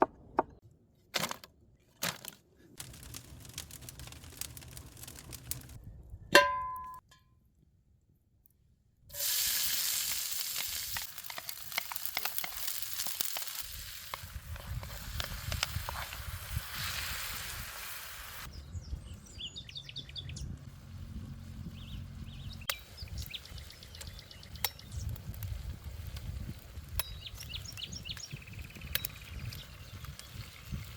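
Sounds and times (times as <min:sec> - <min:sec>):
food sizzling in a pan: 0:09.1 - 0:18.5.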